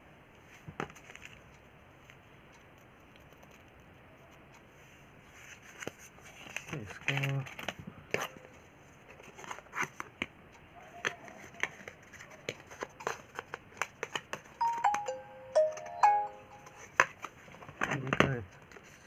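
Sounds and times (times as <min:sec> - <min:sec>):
electronic chime: 0:14.6 - 0:16.9.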